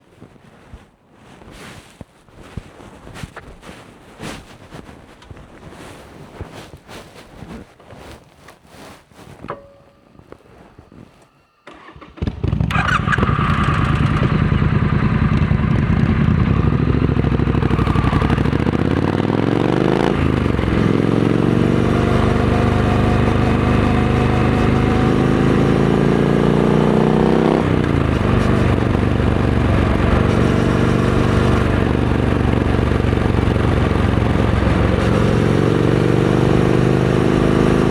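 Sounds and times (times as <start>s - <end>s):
faint handling noise: 0.0s - 12.2s
motorcycle engine revving: 11.7s - 37.9s.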